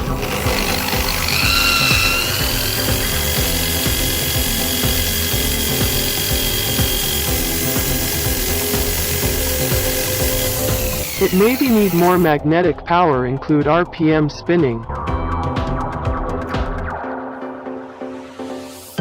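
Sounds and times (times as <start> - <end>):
electric motor whining: 0.0 - 12.3.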